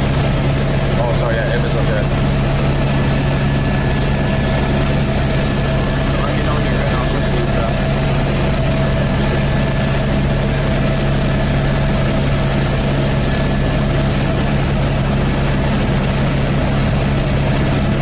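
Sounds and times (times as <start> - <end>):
helicopter cabin drone: 0.0 - 18.0.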